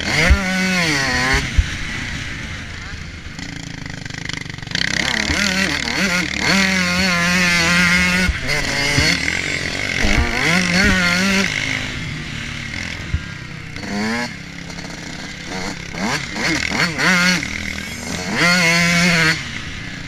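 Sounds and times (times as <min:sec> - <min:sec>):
motorbike engine revving: 0:00.0 - 0:20.0
wind noise: 0:09.9 - 0:11.1
sharp knocks: 0:09.9 - 0:11.3.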